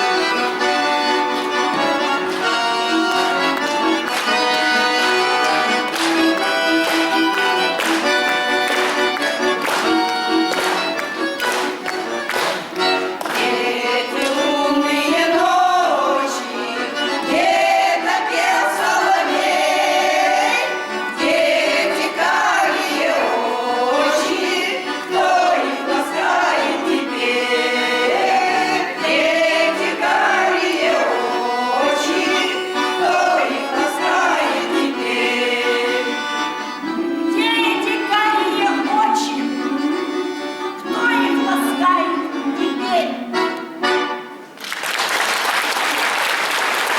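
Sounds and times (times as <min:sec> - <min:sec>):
accordion playing: 0:00.0 - 0:44.6
group of voices singing: 0:13.2 - 0:43.5.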